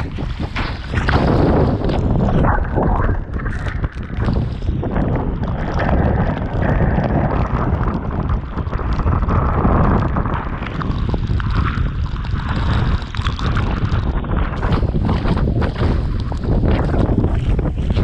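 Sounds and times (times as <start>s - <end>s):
small crackling splashes: 0.0s - 18.0s
water rushing: 0.0s - 18.0s
wind buffeting microphone: 0.0s - 18.0s.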